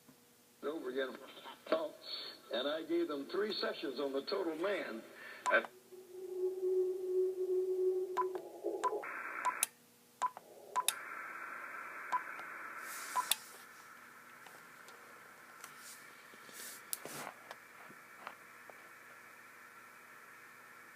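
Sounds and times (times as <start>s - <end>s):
radio static hiss: 0.6s - 6.8s, 7.4s - 20.9s
whistling radio carrier tones: 5.5s - 9.7s, 10.6s - 13.5s
short beeps and clicks: 8.2s - 11.0s.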